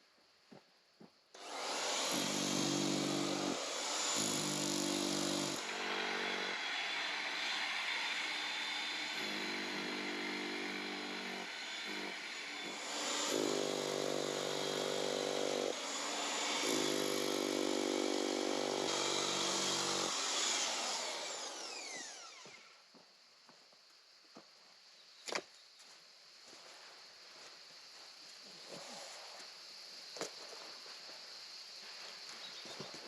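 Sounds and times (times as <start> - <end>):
breaker hammer chiselling ground: 0.5 - 23.1.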